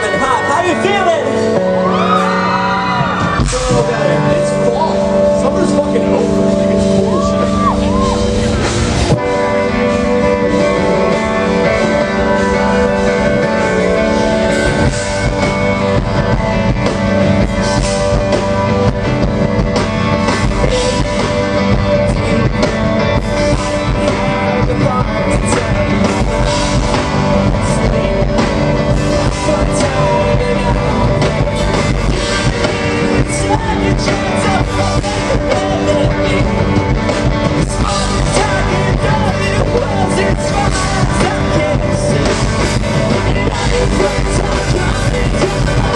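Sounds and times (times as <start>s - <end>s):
distorted electric guitars: 0.0s - 45.9s
drum kit: 0.0s - 45.9s
person singing: 20.3s - 45.9s.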